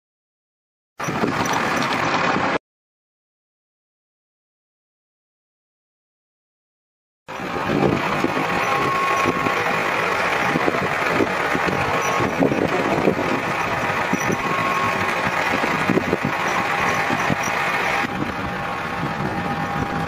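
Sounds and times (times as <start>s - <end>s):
vehicle engine running: 1.0s - 2.6s, 7.3s - 20.0s.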